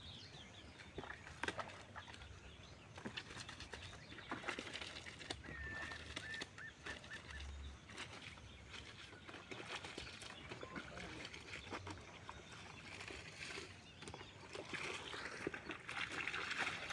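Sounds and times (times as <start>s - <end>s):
water splashing in basin: 0.8s - 16.9s
bird call: 5.4s - 7.5s.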